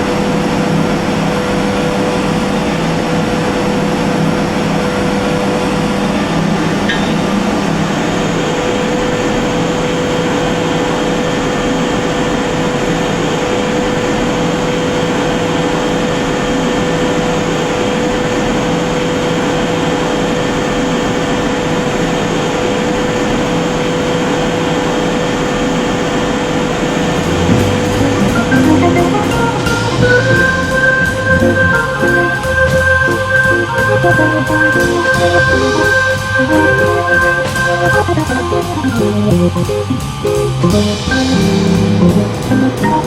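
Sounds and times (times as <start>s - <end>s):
steam boiler hissing: 26.8s - 43.0s
steady tone: 26.9s - 43.0s.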